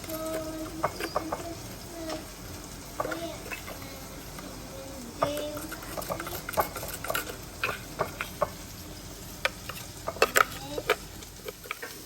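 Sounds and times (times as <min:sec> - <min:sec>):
spoon scraping in plastic jar: 0:05.6 - 0:08.3.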